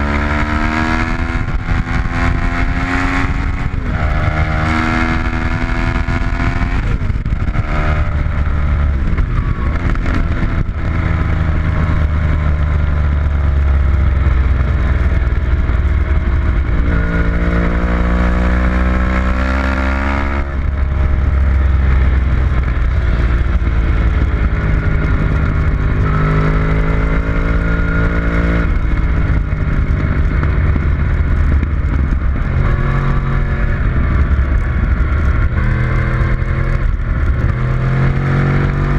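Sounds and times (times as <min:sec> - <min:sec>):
heavy low rumble: 0:00.0 - 0:38.9.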